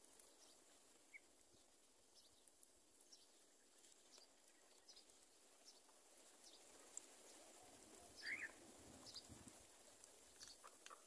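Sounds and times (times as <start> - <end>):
faint high bird chirps: 7.6 - 9.3.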